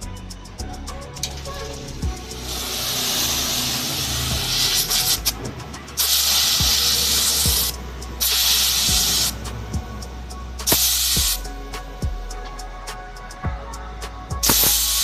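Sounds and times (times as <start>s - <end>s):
low hum: 0.0s - 15.0s
pressurised gas hissing: 0.0s - 15.0s.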